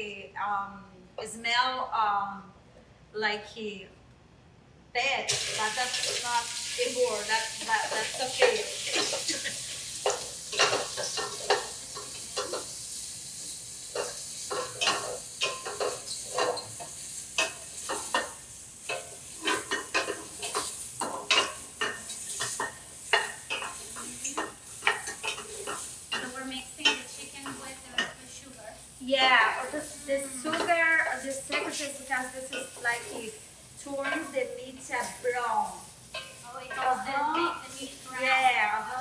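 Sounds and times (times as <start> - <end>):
chicken sizzling in a pan: 5.3 - 39.0
utensil scraping a pan: 5.5 - 13.1, 13.8 - 28.3.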